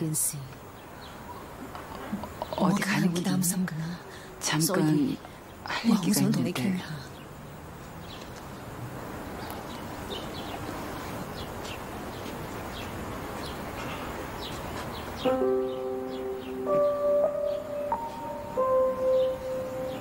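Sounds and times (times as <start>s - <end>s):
small birds chirping: 0.0s - 20.0s
steady background hiss: 0.0s - 20.0s.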